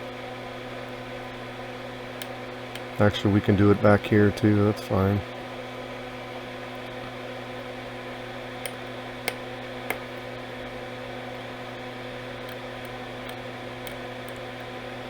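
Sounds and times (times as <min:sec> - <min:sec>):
workbench equipment humming: 0:00.0 - 0:15.0
tool clicking on circuit board: 0:08.6 - 0:10.1, 0:12.4 - 0:14.5.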